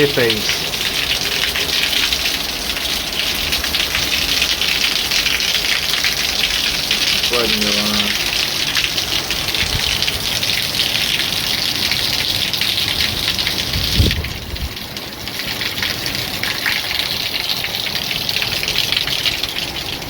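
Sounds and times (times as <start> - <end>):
heavy rain pouring: 0.0 - 20.0
low gusty rumbling: 13.0 - 15.2.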